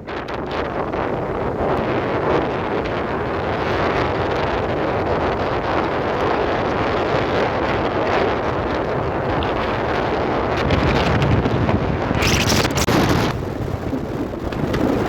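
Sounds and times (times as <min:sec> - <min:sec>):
loud rushing noise: 0:12.2 - 0:15.0.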